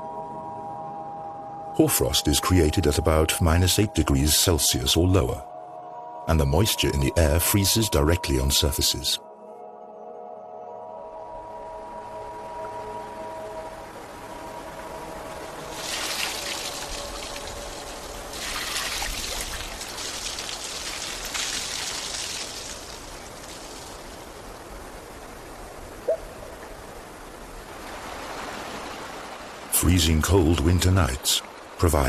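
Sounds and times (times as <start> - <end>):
water trickling: 12.1 - 32.0.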